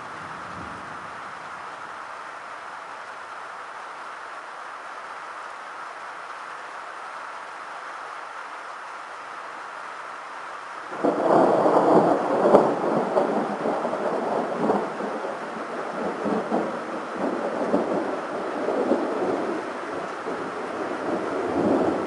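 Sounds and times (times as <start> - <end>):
steady rain: 0.0 - 22.0
thunder crack and rumble: 10.9 - 22.0.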